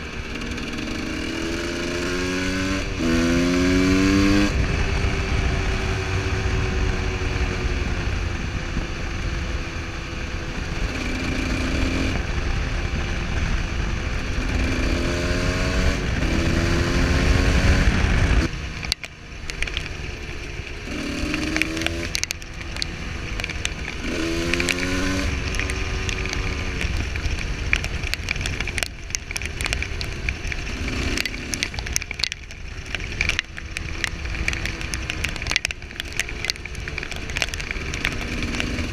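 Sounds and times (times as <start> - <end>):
motorcycle engine revving: 0.0 - 38.9
crackle of small clicks: 18.8 - 38.9.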